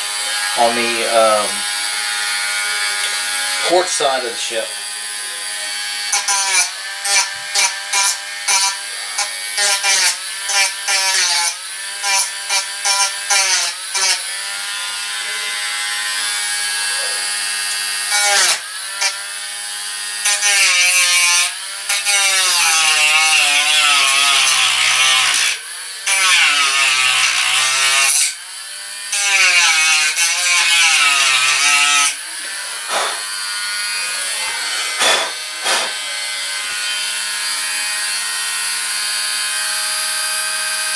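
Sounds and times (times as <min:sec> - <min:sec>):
rotary tool sanding: 0:29.1 - 0:37.5.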